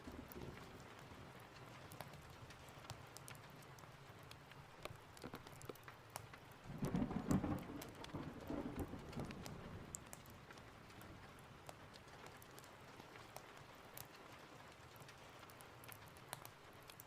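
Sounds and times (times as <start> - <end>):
steady rain: 0.0 - 17.0
thunder rolling: 6.7 - 9.7.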